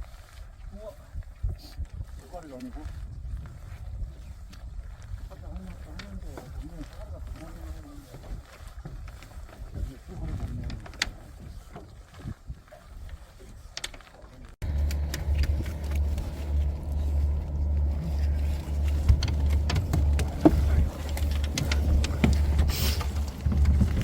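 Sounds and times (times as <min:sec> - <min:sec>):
boat motor droning: 0:14.6 - 0:24.0
knocks and clatter: 0:14.6 - 0:24.0.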